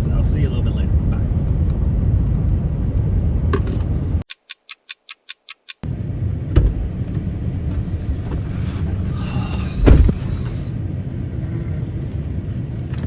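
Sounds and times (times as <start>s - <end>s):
road noise inside vehicle: 0.0s - 4.3s, 5.7s - 13.0s
sharp thumps: 6.6s - 10.8s.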